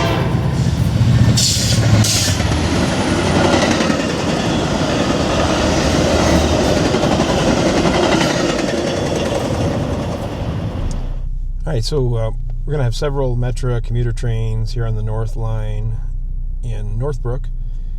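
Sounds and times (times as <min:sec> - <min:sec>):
train passing over rails: 0:00.0 - 0:11.2.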